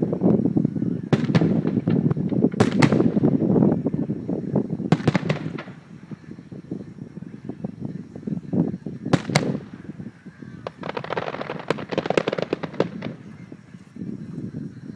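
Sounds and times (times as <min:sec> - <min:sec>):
fireworks booming: 0:00.0 - 0:14.2
fireworks sharp cracks: 0:01.1 - 0:07.3, 0:09.1 - 0:13.8
fireworks crackling pops: 0:01.1 - 0:07.9, 0:09.1 - 0:14.0.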